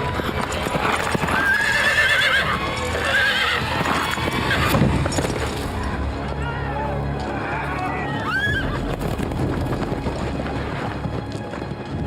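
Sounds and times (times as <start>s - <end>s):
horse hooves clattering: 0.0s - 12.0s
horse neighing: 0.9s - 4.8s.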